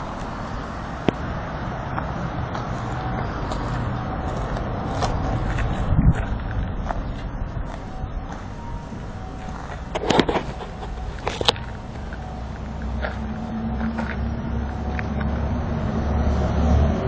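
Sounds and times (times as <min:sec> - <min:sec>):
motorcycle low hum: 0:00.0 - 0:17.0.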